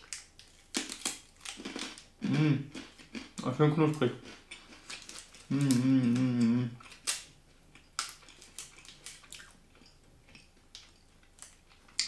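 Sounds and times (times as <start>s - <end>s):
crunchy bar being chewed: 0.0s - 2.1s, 4.2s - 12.0s
person humming mmm while chewing: 2.2s - 2.9s, 5.4s - 7.0s.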